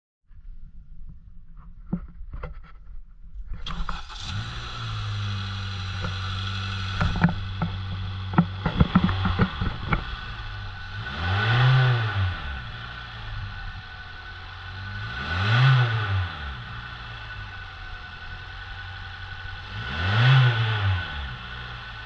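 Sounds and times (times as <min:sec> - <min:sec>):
car engine starting and idling: 0:03.6 - 0:22.0
engine revving: 0:03.6 - 0:22.0
sharp clicks and knocks: 0:06.8 - 0:10.2.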